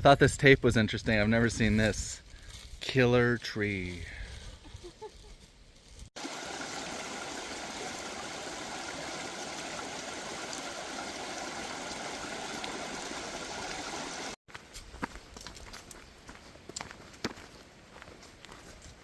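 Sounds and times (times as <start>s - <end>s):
stream water rushing: 6.2s - 14.4s.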